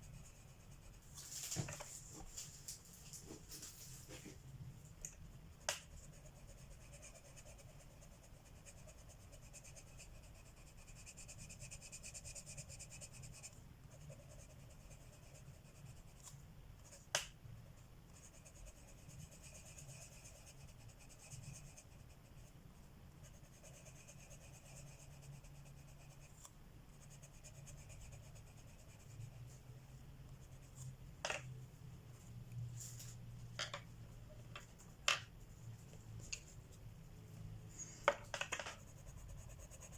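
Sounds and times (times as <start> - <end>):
pencil scratching on paper: 0.0 - 2.3, 5.6 - 17.1, 18.1 - 22.6, 23.2 - 29.5, 38.6 - 39.9.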